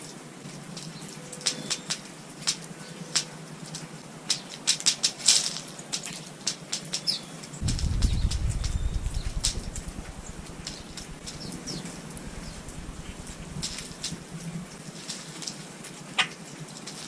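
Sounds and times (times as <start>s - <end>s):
low rumble: 7.6s - 14.7s
wing flutters: 7.6s - 14.8s.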